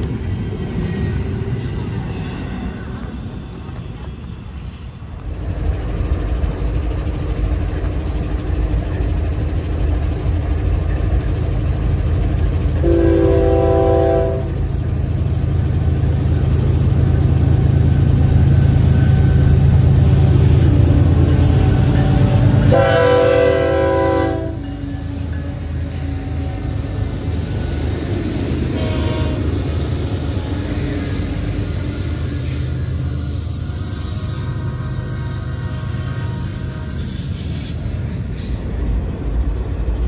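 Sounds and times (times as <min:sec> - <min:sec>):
diesel locomotives rumbling: 0:00.0 - 0:40.0
locomotive air horn blasts: 0:12.8 - 0:14.6, 0:22.1 - 0:24.7, 0:28.7 - 0:29.5.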